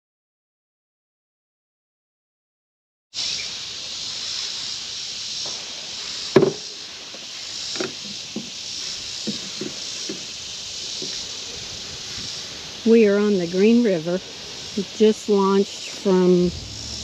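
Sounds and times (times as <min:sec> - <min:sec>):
paddle knocking canoe hull: 0:06.4 - 0:06.6.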